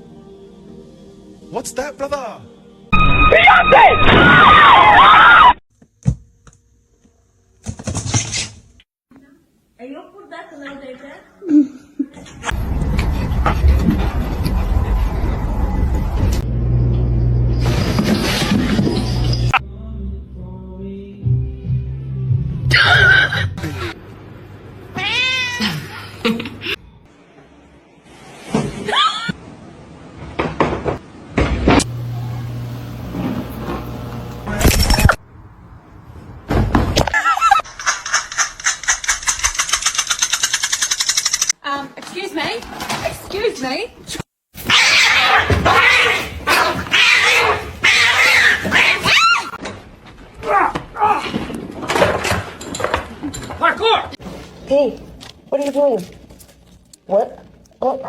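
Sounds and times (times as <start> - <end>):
cat yowling: 3.2 - 5.6, 25.0 - 25.9, 44.7 - 49.6
cat meowing: 24.9 - 25.8.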